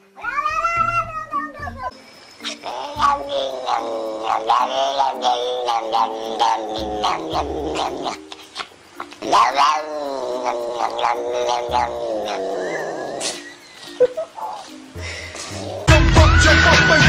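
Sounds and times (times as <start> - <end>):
cat yowling: 0.2 - 1.9, 2.5 - 13.6.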